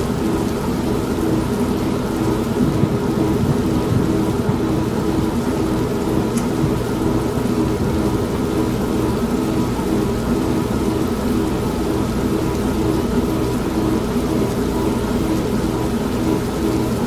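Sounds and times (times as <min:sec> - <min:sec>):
heavy rain: 0:00.0 - 0:17.0
washing machine humming: 0:00.0 - 0:17.0
low rumble of thunder: 0:01.2 - 0:10.9.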